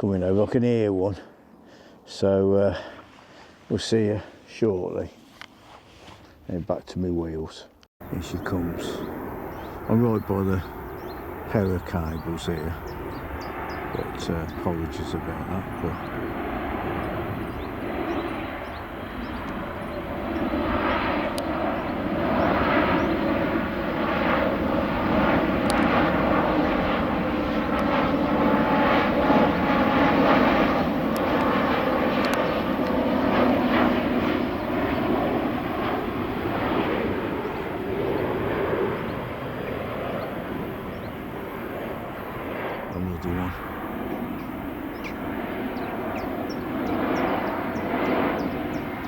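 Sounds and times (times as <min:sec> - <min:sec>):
airliner engine noise: 0:08.0 - 0:49.0.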